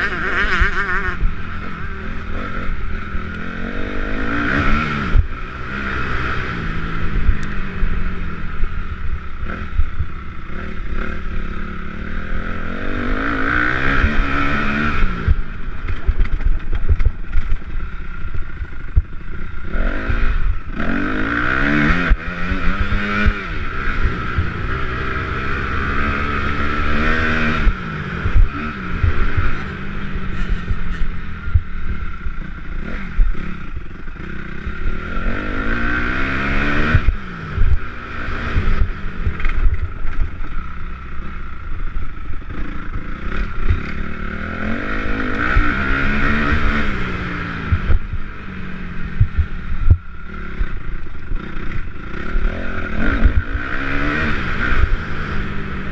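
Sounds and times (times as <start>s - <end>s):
drone of motorcycles: 0.0s - 55.9s
motorcycle engines revving: 0.0s - 55.9s.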